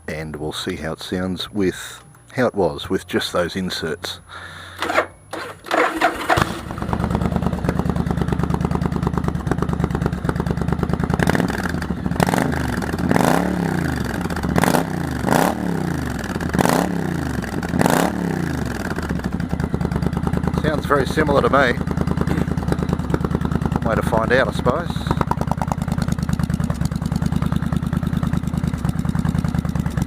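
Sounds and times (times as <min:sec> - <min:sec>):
motorcycle engine idling and revving: 0:04.7 - 0:30.0.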